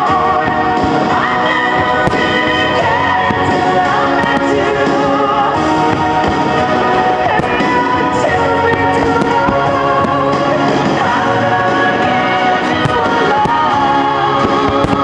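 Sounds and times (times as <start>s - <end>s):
firework bangs and pops: 0.0s - 15.0s
melodic music: 0.0s - 15.0s.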